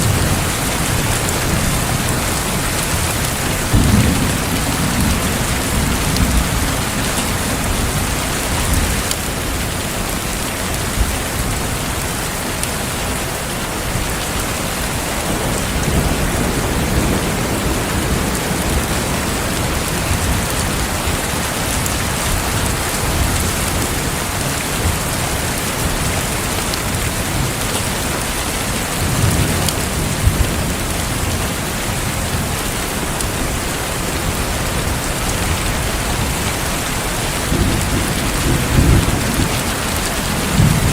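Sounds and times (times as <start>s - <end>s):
thunder rolling: 0.0s - 9.6s, 14.9s - 26.1s, 34.2s - 40.9s
heavy rain: 0.0s - 40.9s.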